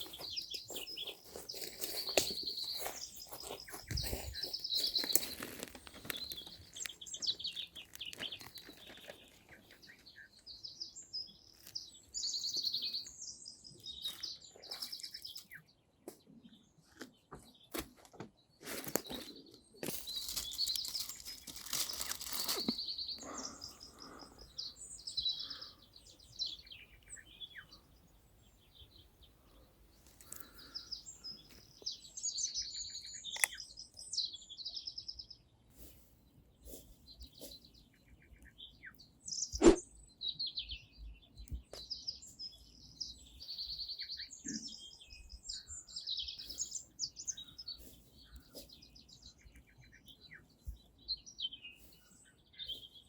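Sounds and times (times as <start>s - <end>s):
songbirds singing: 0.0s - 53.0s
rustling noise: 18.6s - 22.9s.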